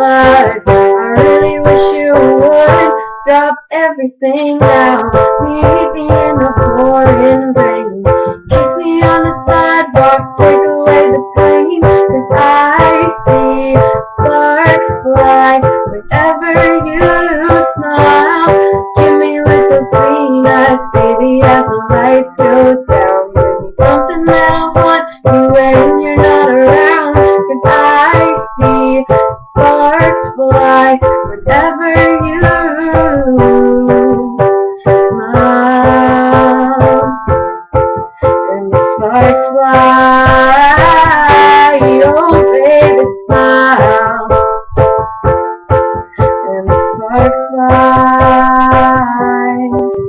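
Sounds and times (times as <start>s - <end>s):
piano playing repeated chords: 0.0s - 50.0s.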